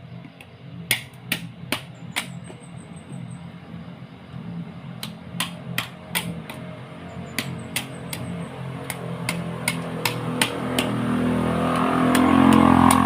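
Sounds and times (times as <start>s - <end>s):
low steady hum: 0.0s - 13.0s
sharp knocks: 5.0s - 6.6s, 7.4s - 11.1s.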